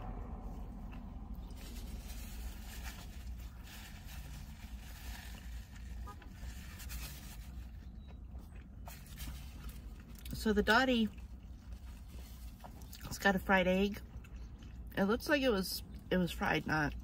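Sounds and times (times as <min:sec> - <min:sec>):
quiet chewing: 0:00.0 - 0:10.4, 0:11.0 - 0:13.2, 0:14.0 - 0:15.0
steady low rumble: 0:00.0 - 0:17.0
paper napkin rustling: 0:01.5 - 0:07.8.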